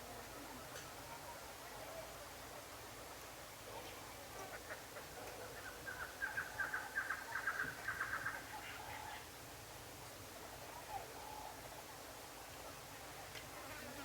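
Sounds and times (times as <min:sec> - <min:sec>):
fainter lower bird calls: 0:05.5 - 0:09.3.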